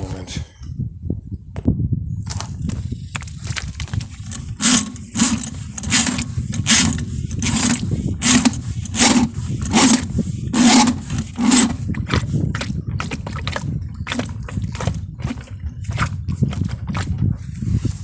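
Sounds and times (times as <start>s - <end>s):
drain cleaning machine motor rumble: 3.2s - 17.2s
rasping strokes: 3.2s - 18.0s.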